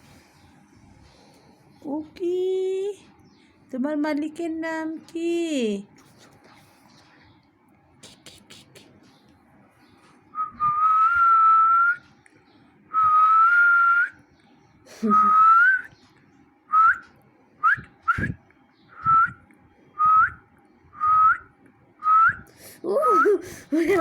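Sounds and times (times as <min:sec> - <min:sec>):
person whistling: 0:10.4 - 0:12.0, 0:17.6 - 0:18.4.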